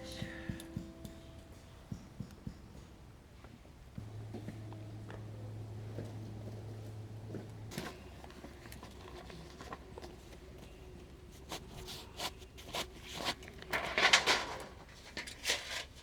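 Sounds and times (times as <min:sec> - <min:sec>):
low steady hum: 0:00.0 - 0:09.0
scrapes rustles and clicks: 0:07.3 - 0:16.0.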